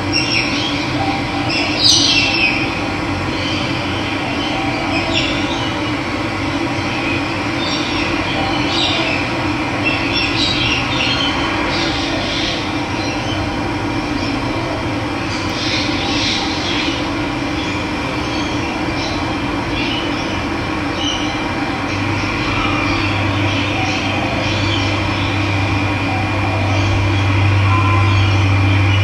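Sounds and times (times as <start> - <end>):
birds chirping: 0.1 - 5.9, 15.2 - 29.0.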